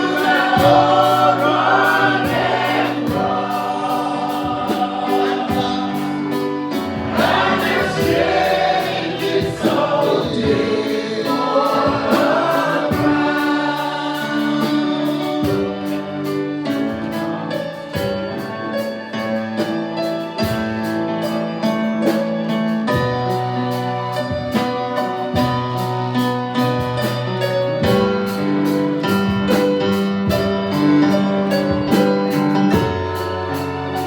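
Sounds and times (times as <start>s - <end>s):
voices singing: 0.0s - 16.6s
keyboard chords with steady beat: 0.0s - 34.0s.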